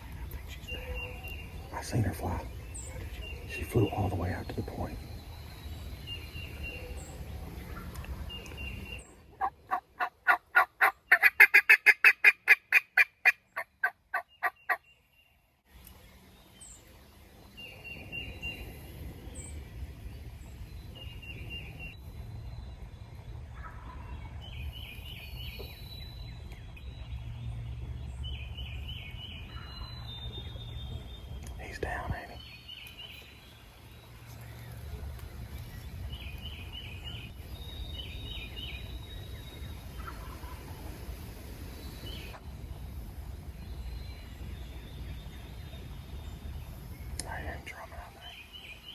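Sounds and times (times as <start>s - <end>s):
faint songbird chirps: 0.0s - 11.3s, 13.3s - 48.9s
wild turkey yelping: 9.4s - 14.8s.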